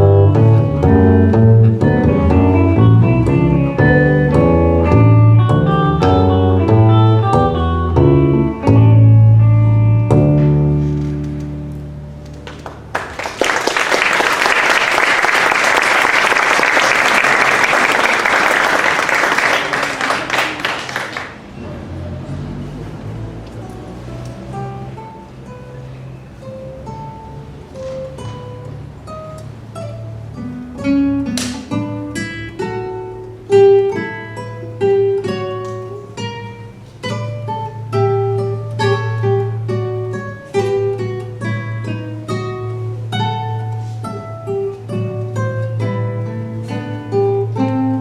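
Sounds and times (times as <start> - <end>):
held music chord: 0.0 - 10.8
acoustic guitar ensemble playing: 0.0 - 48.0
audience applauding: 12.4 - 21.5.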